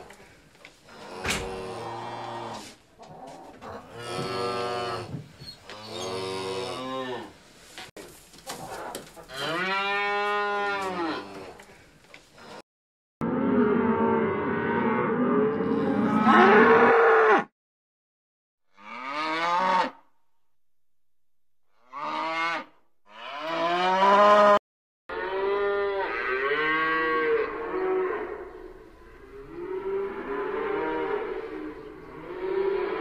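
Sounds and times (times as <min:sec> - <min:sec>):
cows mooing: 0:00.9 - 0:05.1, 0:13.2 - 0:17.5, 0:18.8 - 0:20.0, 0:21.8 - 0:33.0.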